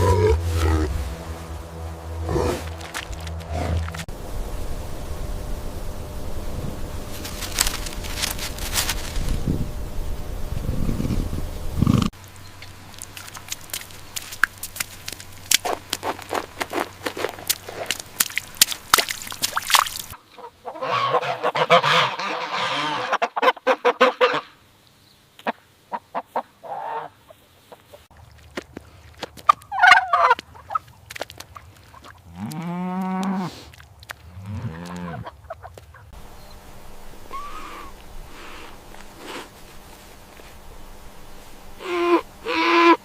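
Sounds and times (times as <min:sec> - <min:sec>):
rustling: 0:00.0 - 0:04.1, 0:06.7 - 0:09.7, 0:35.8 - 0:41.9
geese honking: 0:20.4 - 0:24.6, 0:29.6 - 0:30.9, 0:41.8 - 0:43.0.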